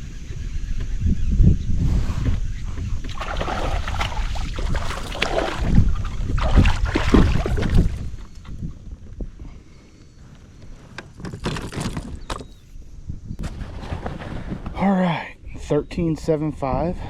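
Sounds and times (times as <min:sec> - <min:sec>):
wind buffeting microphone: 0:00.0 - 0:10.9, 0:11.9 - 0:17.0
water splashing: 0:03.0 - 0:08.2.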